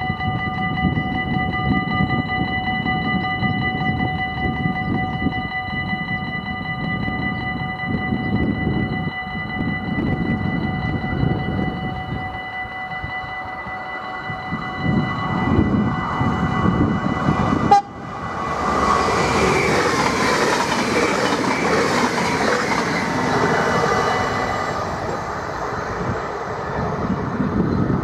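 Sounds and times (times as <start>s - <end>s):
level-crossing bells ringing: 0.0s - 25.8s
train rushing past: 9.8s - 28.0s.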